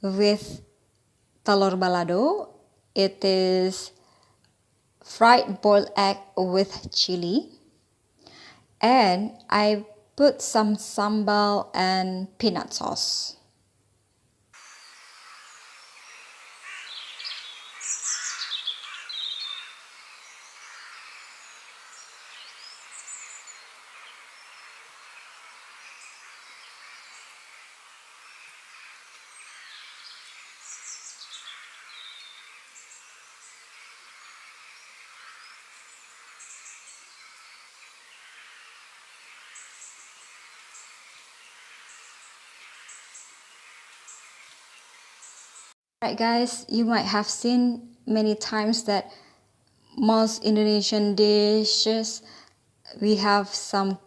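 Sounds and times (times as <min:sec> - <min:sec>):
steady background hiss: 0:00.0 - 0:54.0
birds chirping and calling: 0:14.6 - 0:45.7.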